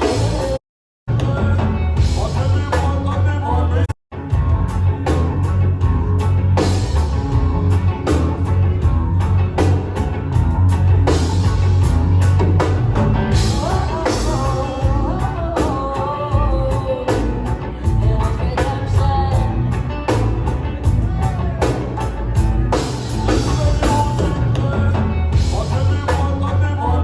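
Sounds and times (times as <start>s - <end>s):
person singing: 0.0s - 4.0s, 13.3s - 22.2s, 22.8s - 27.0s
bass and guitar: 0.0s - 27.0s.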